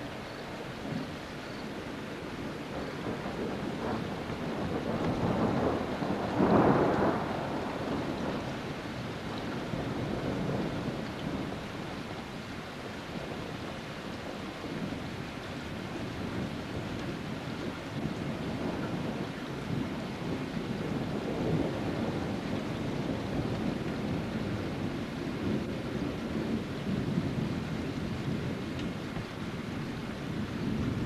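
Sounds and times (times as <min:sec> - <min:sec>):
rain hiss: 0:00.0 - 0:31.0
thunder rolling: 0:02.7 - 0:08.7.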